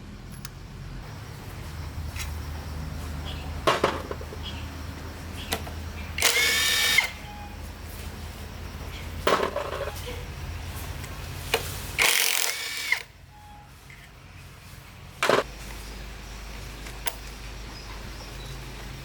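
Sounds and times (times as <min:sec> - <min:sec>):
power tool motor running: 0:01.0 - 0:07.8, 0:10.4 - 0:13.2
ringing metal squeal: 0:07.0 - 0:07.7, 0:13.3 - 0:14.0
metal scrapes and knocks: 0:09.2 - 0:10.2.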